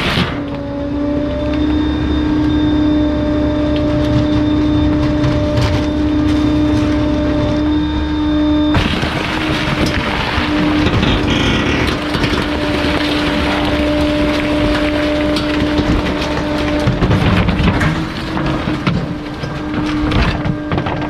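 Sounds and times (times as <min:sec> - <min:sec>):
hydraulic compactor humming: 0:00.0 - 0:21.0
crackling and snapping: 0:08.4 - 0:21.0.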